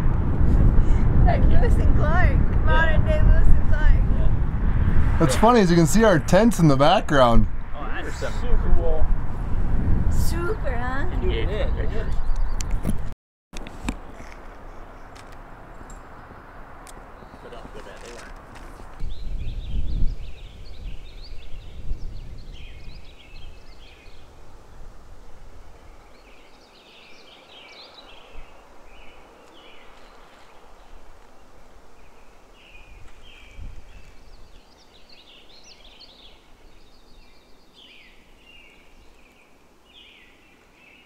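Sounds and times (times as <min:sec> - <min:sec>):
low rumbling noise: 0:00.0 - 0:11.9
songbirds singing: 0:11.5 - 0:12.8, 0:14.0 - 0:41.0.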